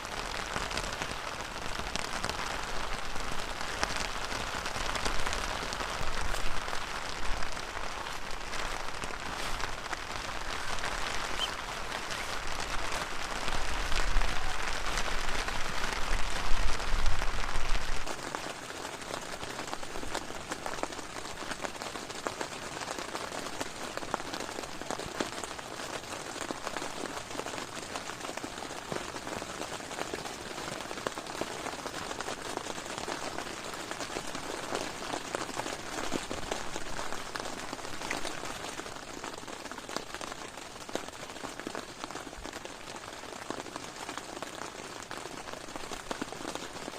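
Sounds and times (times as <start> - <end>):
heavy rain falling: 0.0 - 46.9
wind rumbling on microphone: 0.1 - 18.3.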